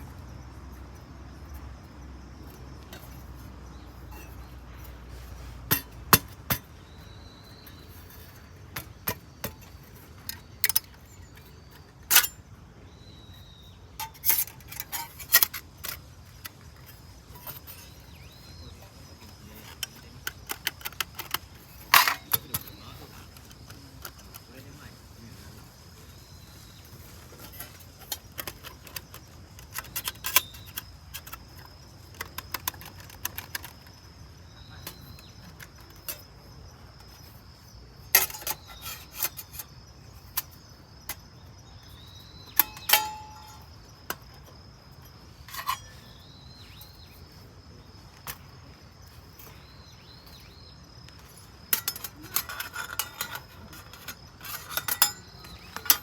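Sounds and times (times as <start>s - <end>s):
thin metal parts clinking: 42.5s - 44.2s, 51.2s - 56.0s.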